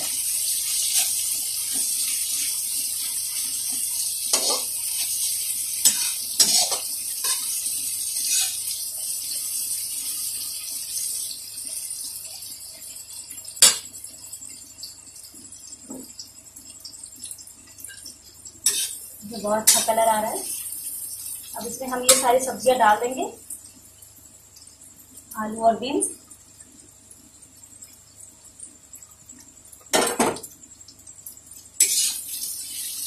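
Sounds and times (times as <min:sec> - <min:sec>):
vegetables sizzling in oil: 0:00.0 - 0:33.0
metal spoon scraping a pan: 0:04.3 - 0:05.2, 0:05.8 - 0:07.6, 0:08.2 - 0:08.6, 0:18.6 - 0:19.0, 0:19.6 - 0:20.0, 0:22.0 - 0:22.4, 0:31.8 - 0:32.9.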